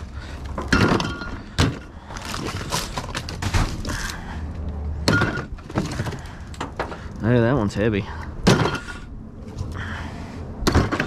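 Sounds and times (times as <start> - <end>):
rubbish rummaged in dumpster: 0.0 - 4.3, 5.0 - 7.1.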